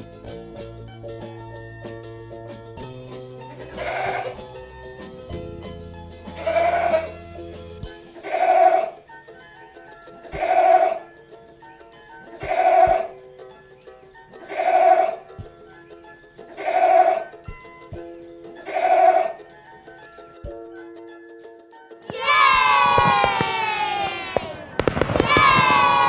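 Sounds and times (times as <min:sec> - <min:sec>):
goat bleating: 0:03.6 - 0:04.4, 0:06.4 - 0:07.1
soft background music: 0:13.0 - 0:18.7.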